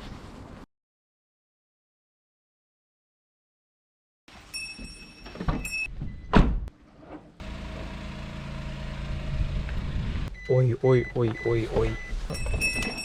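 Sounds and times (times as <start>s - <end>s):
car engine running: 7.4s - 10.3s.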